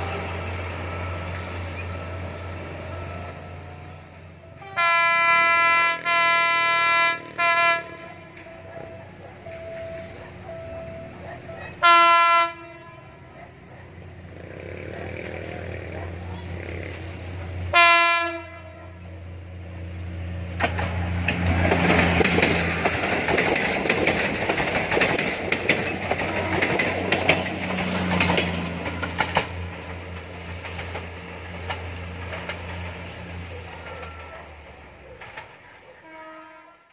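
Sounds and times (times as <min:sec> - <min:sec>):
train horn blast: 0:04.6 - 0:09.0, 0:10.8 - 0:13.4, 0:17.7 - 0:19.2, 0:26.2 - 0:27.1, 0:36.0 - 0:36.9
diesel engine drone: 0:12.9 - 0:17.8
wheels on rails: 0:13.4 - 0:17.6, 0:19.0 - 0:36.0.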